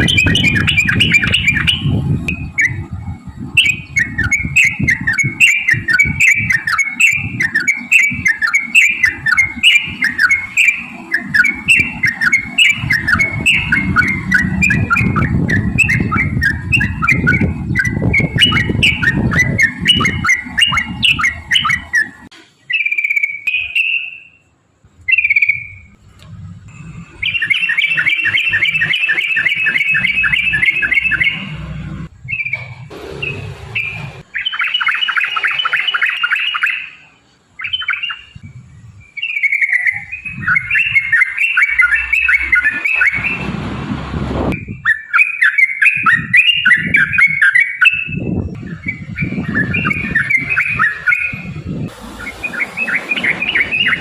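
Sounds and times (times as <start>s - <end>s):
bulbul singing: 0.0s - 43.6s, 44.4s - 54.0s
low rumble: 24.8s - 27.7s, 30.2s - 34.4s, 41.8s - 44.8s.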